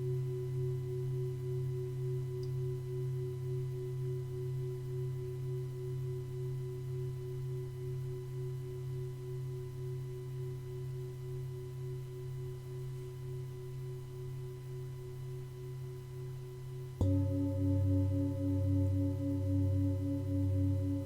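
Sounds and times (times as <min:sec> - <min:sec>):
singing bowl struck: 0:17.0 - 0:21.0
singing bowls ringing: 0:17.0 - 0:21.0.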